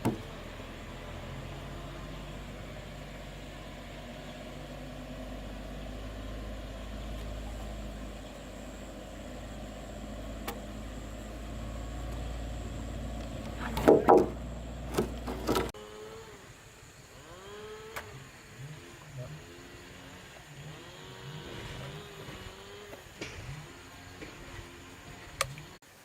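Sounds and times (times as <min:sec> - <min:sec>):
low motor-like hum: 0:00.0 - 0:25.8
loud sharp knocks: 0:13.8 - 0:14.4.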